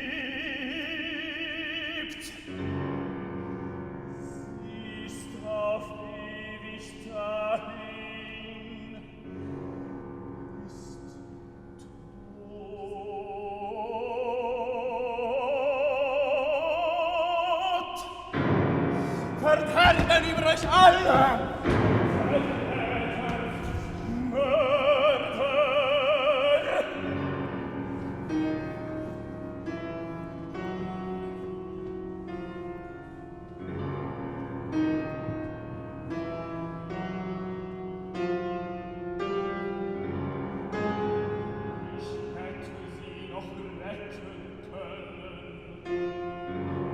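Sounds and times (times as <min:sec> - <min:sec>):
operatic singing with vibrato: 0:00.0 - 0:02.7, 0:04.3 - 0:09.4, 0:12.2 - 0:31.5, 0:41.8 - 0:46.3
piano playing slow chords: 0:18.0 - 0:46.9.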